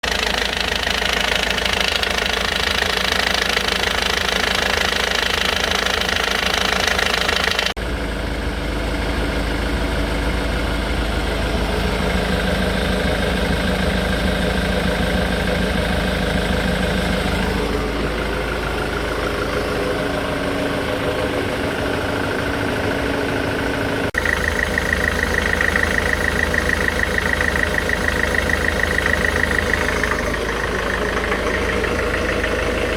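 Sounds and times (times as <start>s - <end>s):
car engine idling: 0.0s - 32.9s
engine knocking: 0.0s - 32.9s.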